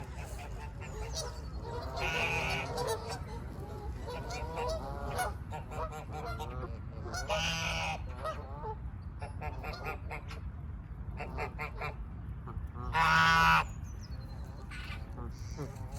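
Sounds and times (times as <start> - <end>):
geese honking: 0.0 - 8.8, 12.8 - 13.7
steady low rumble: 0.0 - 15.9.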